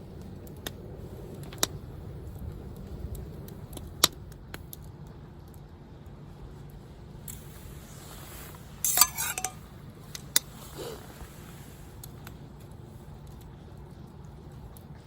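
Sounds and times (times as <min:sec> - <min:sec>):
tableware clinking: 0:08.8 - 0:09.6.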